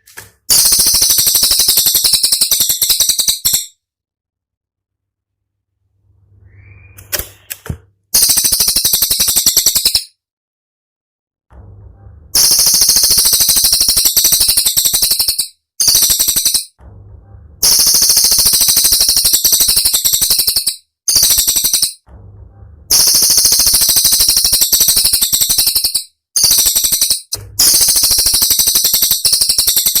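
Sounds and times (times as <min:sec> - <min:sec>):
songbird singing rattling trills: 0:00.5 - 0:03.7, 0:12.4 - 0:16.8, 0:17.6 - 0:22.0, 0:22.9 - 0:30.0.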